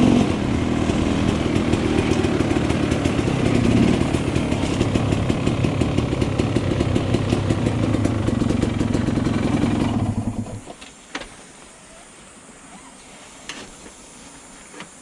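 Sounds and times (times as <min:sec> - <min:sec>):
two-stroke engine idling: 0:00.0 - 0:10.6.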